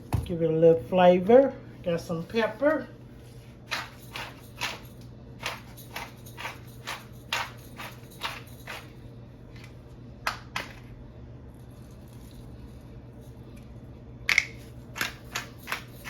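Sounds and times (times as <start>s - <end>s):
faint steady hum: 0.0s - 16.0s
pepper shaker rasping: 3.2s - 9.0s, 14.9s - 16.0s.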